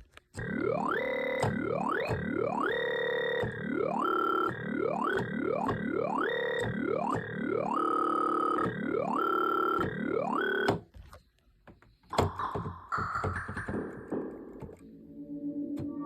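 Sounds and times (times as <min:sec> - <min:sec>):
synthesizer sustained notes: 0:12.1 - 0:16.0.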